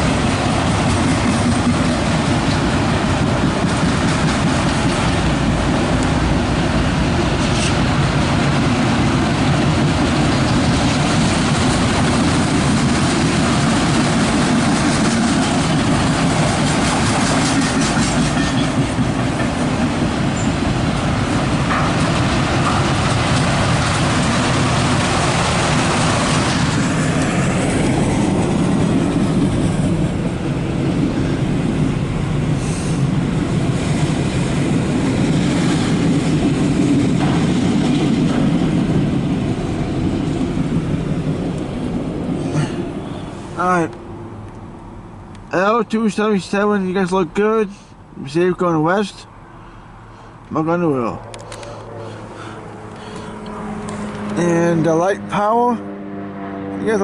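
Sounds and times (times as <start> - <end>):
steel wheels clattering on rail: 0.0 - 43.2
freight train rolling past: 0.0 - 56.6.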